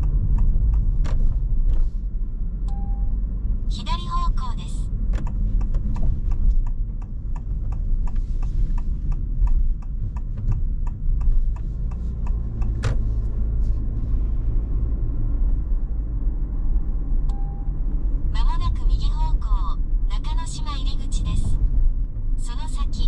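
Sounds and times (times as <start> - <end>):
turn signal ticking: 0.0 - 1.8, 2.6 - 3.2, 4.9 - 13.9, 17.2 - 17.8
road and drivetrain rumble: 0.0 - 23.0.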